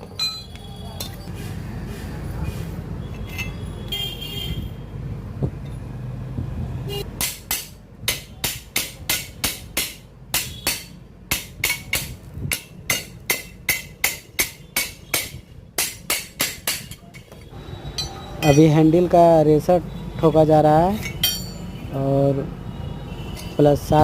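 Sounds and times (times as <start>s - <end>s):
hammer strikes on steel: 7.1s - 18.7s, 21.0s - 21.7s.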